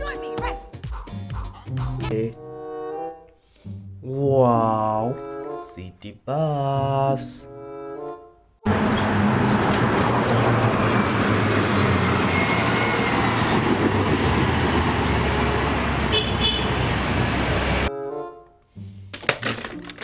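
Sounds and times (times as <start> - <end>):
road noise: 8.6 - 17.9
bus engine running: 8.7 - 17.9
short horn toot: 16.1 - 16.7.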